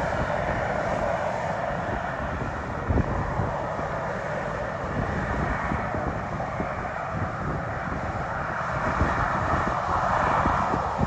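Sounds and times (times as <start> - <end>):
jet airliner engine rushing: 0.0 - 11.0.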